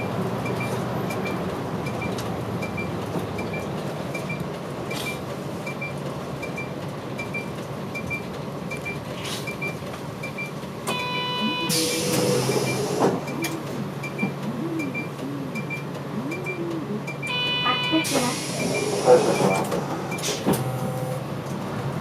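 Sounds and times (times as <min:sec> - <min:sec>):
bus diesel engine droning: 0:00.0 - 0:22.0
short electronic beep: 0:10.3 - 0:12.8.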